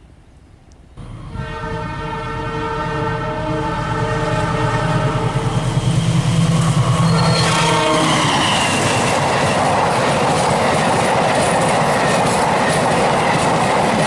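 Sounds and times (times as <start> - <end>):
low throb of train: 0.0 - 14.0
locomotive horn blast: 1.0 - 9.2.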